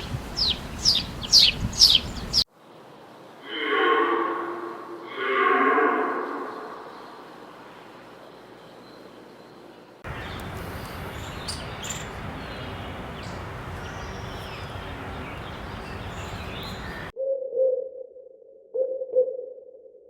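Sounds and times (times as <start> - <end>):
bird chirps: 0.0 - 2.4, 8.7 - 17.1
steady outdoor noise: 0.0 - 17.1.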